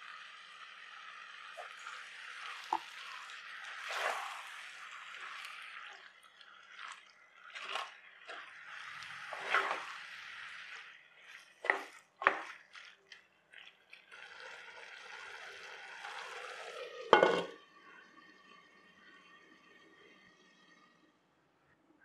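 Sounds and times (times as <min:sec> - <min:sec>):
squid sizzling in a pot: 0:00.0 - 0:13.0, 0:13.8 - 0:17.6
spatula scraping and knocking pot: 0:17.2 - 0:17.6.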